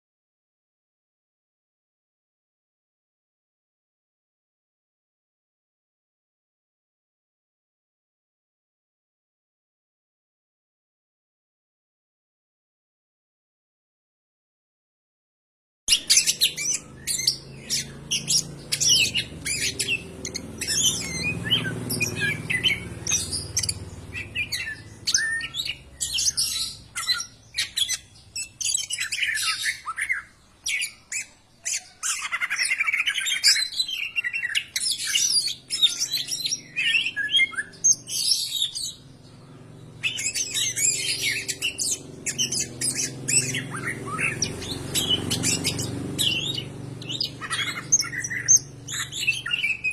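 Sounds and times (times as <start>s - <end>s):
leafbird singing: 15.9s - 49.9s.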